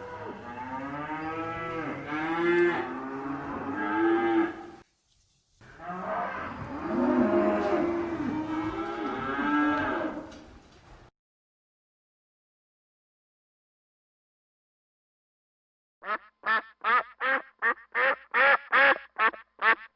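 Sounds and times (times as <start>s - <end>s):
cattle mooing: 0.0s - 4.8s, 5.8s - 10.4s.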